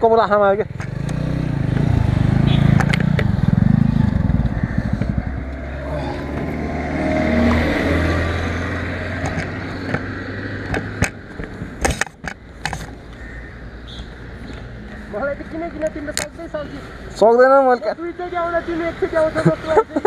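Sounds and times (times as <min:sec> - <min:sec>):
motorcycle engine running: 0:00.6 - 0:12.2.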